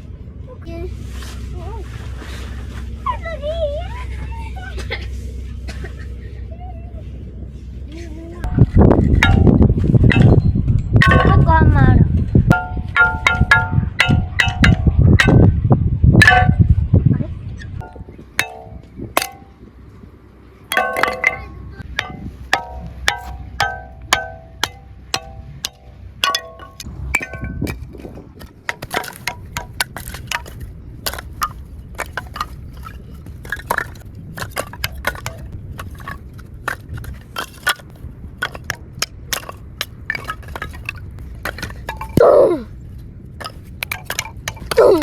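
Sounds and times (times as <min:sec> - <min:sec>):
metallic clinks and knocks: 0:17.8 - 0:19.6, 0:20.7 - 0:42.3, 0:43.4 - 0:45.0.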